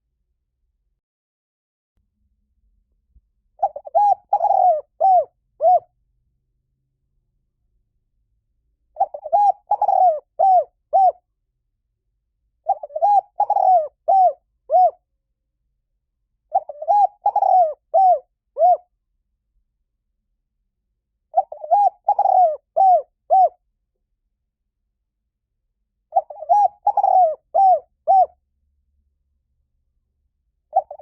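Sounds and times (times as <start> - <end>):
dove cooing: 3.6 - 5.9, 9.0 - 11.2, 12.6 - 15.0, 16.5 - 18.8, 21.4 - 23.6, 26.1 - 28.4, 30.7 - 31.0.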